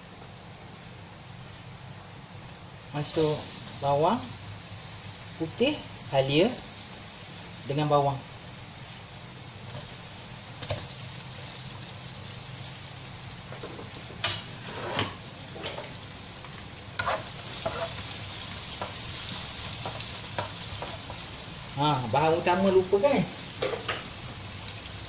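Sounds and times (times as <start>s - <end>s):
onions sizzling in hot oil: 2.9s - 25.0s
spatula scraping wok: 13.6s - 16.0s, 16.9s - 21.4s.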